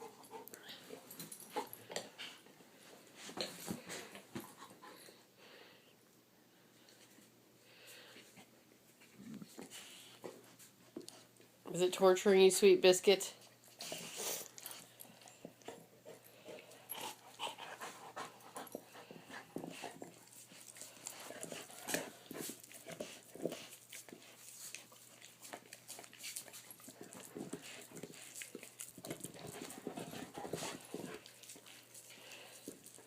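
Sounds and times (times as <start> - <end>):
dog panting: 0.0 - 2.5, 13.6 - 33.0.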